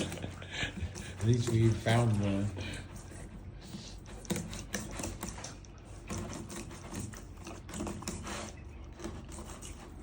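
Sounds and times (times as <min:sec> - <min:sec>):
knife scraping fish skin: 0:04.0 - 0:10.0.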